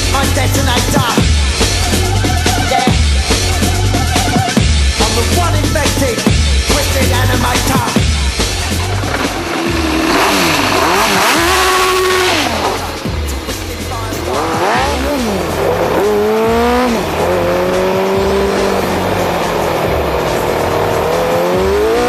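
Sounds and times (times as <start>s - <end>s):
electronic music with pulsing bass: 0.0s - 22.0s
motorcycle engine revving: 0.0s - 22.0s.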